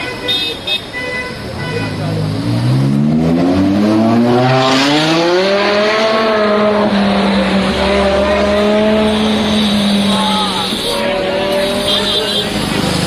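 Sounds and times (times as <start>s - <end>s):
sports car engine accelerating: 2.2s - 10.2s.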